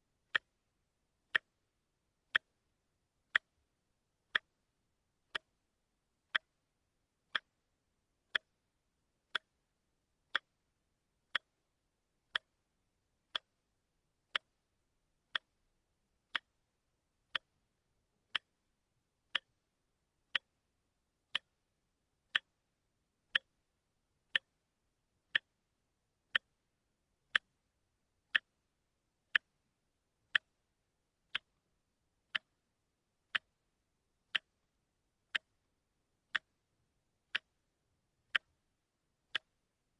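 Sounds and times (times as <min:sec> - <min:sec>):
watch ticking: 0:00.3 - 0:00.6, 0:01.3 - 0:01.6, 0:02.3 - 0:02.6, 0:03.3 - 0:03.6, 0:04.2 - 0:04.6, 0:05.2 - 0:05.6, 0:06.2 - 0:06.6, 0:07.3 - 0:07.6, 0:08.3 - 0:08.7, 0:09.3 - 0:09.7, 0:10.3 - 0:10.6, 0:11.3 - 0:11.7, 0:12.3 - 0:12.6, 0:13.3 - 0:13.6, 0:14.3 - 0:14.7, 0:15.3 - 0:16.7, 0:17.3 - 0:17.6, 0:18.3 - 0:18.7, 0:19.3 - 0:19.7, 0:20.3 - 0:20.6, 0:21.3 - 0:21.6, 0:22.3 - 0:22.6, 0:23.3 - 0:23.6, 0:24.3 - 0:24.6, 0:25.3 - 0:25.6, 0:26.3 - 0:26.7, 0:27.3 - 0:27.6, 0:28.3 - 0:28.7, 0:29.3 - 0:29.7, 0:30.3 - 0:31.7, 0:32.3 - 0:36.7, 0:37.3 - 0:39.8.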